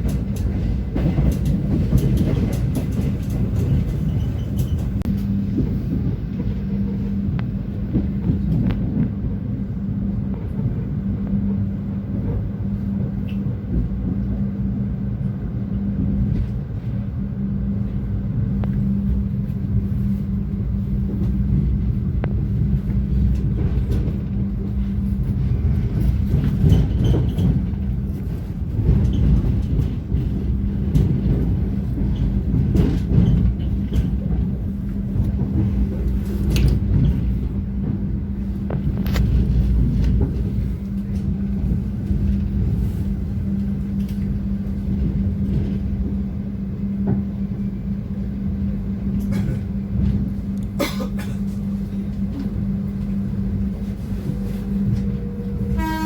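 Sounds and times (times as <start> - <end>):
train rumbling on track: 0.0 - 56.0.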